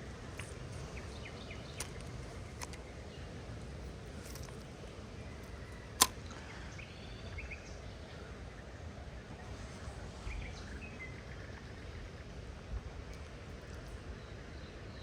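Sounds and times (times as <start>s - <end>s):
sharp click: 6.0s - 6.2s.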